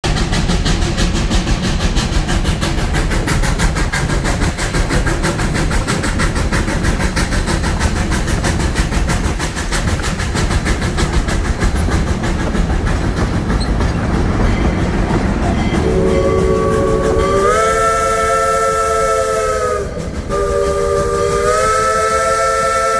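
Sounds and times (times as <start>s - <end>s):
steady rumble: 0.0s - 22.6s
steam train chuffing: 0.0s - 22.9s.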